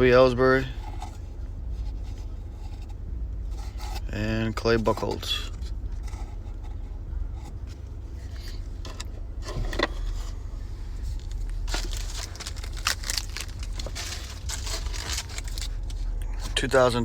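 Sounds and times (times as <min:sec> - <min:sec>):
low steady hum: 0:00.0 - 0:17.0
cards clicking and rustling: 0:11.2 - 0:16.0
wrapper crinkling and tearing: 0:11.2 - 0:16.1.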